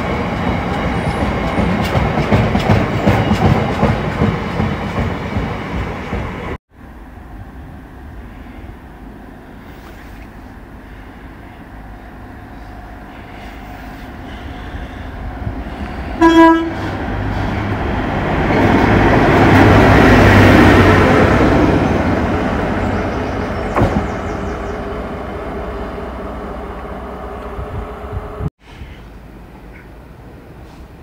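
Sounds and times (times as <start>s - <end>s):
train rumble passing: 0.0s - 28.5s
train horn toot: 16.2s - 17.0s.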